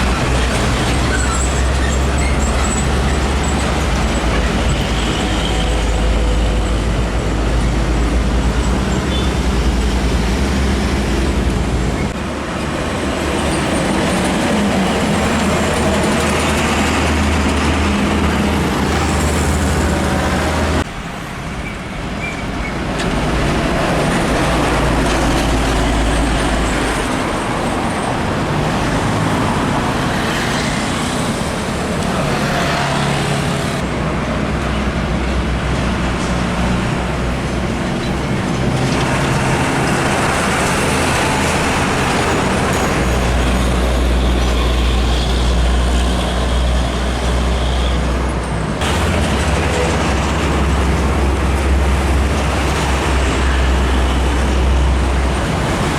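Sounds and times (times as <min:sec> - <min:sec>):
diesel trucks passing: 0:00.0 - 0:55.9
road noise: 0:00.0 - 0:55.9.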